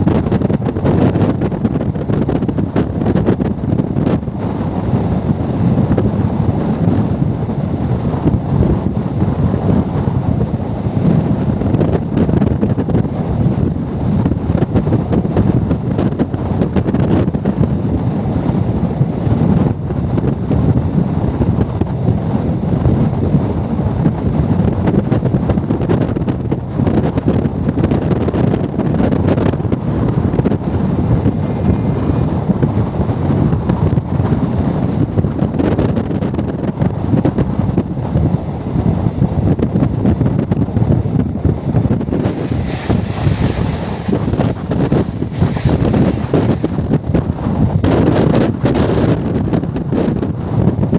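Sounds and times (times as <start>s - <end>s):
train rumbling: 0.0s - 20.7s, 28.7s - 35.4s, 37.9s - 50.9s
wind buffeting microphone: 0.0s - 50.9s.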